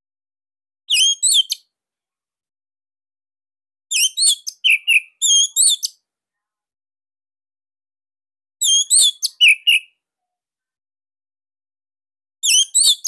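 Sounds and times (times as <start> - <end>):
songbird whistled phrases: 0.9 - 1.6, 3.9 - 6.0, 8.6 - 9.9, 12.4 - 13.0.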